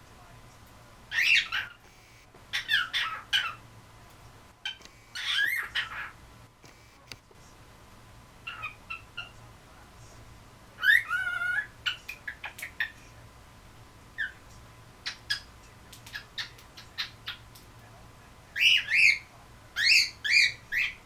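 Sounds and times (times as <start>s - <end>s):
cockatiel chirping: 1.1s - 1.8s, 2.5s - 3.6s, 4.6s - 6.2s, 8.4s - 9.4s, 10.8s - 13.0s, 15.0s - 17.5s, 18.6s - 21.0s
cockatiel warbling call: 4.7s - 6.2s.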